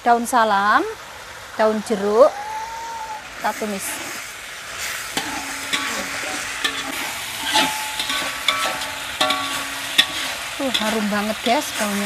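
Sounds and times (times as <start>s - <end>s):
paste sizzling in hot oil: 3.2s - 12.0s
metal spatula scraping wok: 3.4s - 12.0s
spatula clinking on wok: 5.2s - 12.0s.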